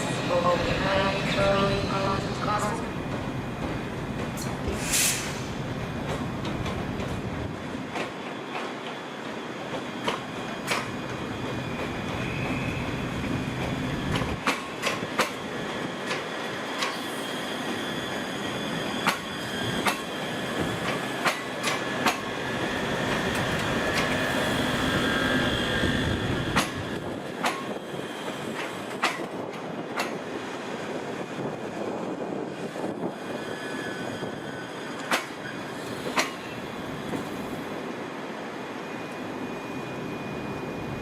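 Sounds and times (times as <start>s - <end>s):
train rumbling: 0.0s - 41.0s
wheels clicking over rail joints: 20.8s - 22.3s, 28.4s - 30.2s, 35.0s - 36.5s.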